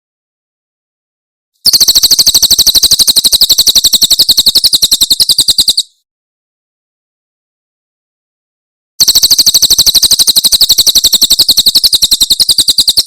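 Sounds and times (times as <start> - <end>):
bird rattling song: 1.6 - 6.0, 9.0 - 13.0.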